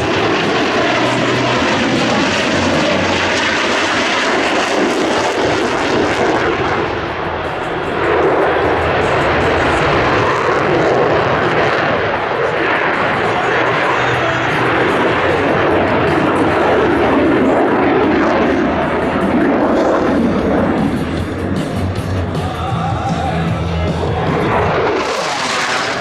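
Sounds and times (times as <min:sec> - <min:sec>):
airplane engine roar: 0:00.0 - 0:26.0.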